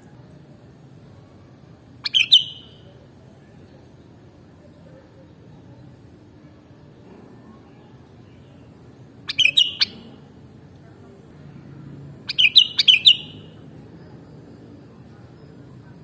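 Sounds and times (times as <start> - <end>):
bird singing whistled notes: 2.0 - 2.9, 9.3 - 10.1, 12.3 - 13.6.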